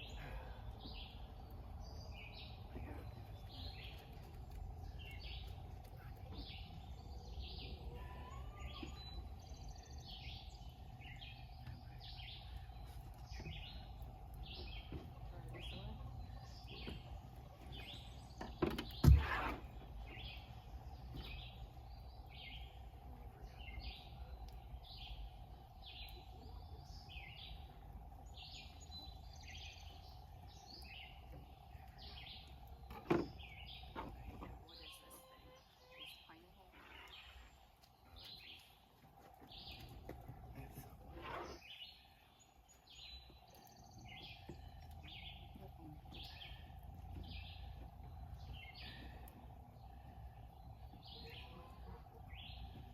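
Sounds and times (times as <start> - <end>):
birds chirping: 0.0 - 52.9
low outdoor rumble: 0.0 - 52.9.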